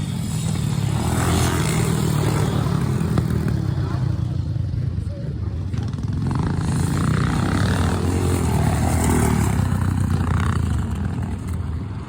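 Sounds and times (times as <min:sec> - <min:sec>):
motorcycles racing and revving: 0:00.0 - 0:12.0.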